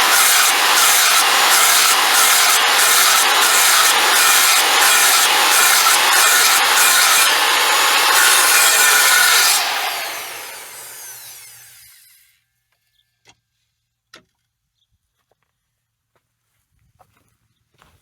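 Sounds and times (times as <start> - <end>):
table saw cutting wood: 0.0 - 12.3
saw blade winding down whine: 0.0 - 12.4.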